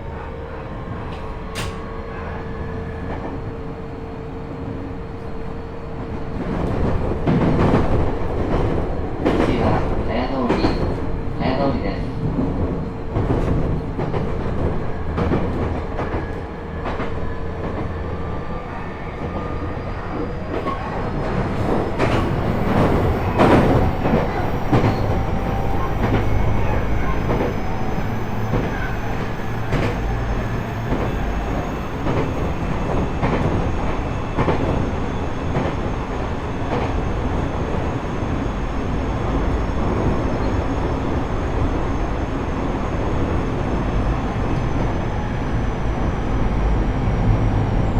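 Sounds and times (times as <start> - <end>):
clicks and knocks from track: 1.1 - 1.8.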